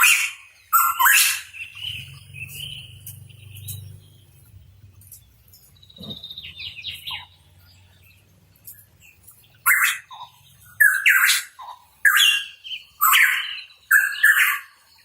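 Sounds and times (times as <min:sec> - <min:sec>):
bird calling: 0:00.0 - 0:04.1, 0:05.8 - 0:07.7, 0:09.4 - 0:14.8.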